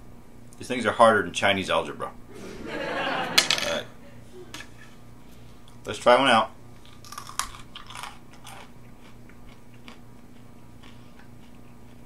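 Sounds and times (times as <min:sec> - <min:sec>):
chewing: 0:06.8 - 0:12.0
crunching crisp apple slice: 0:06.8 - 0:12.0.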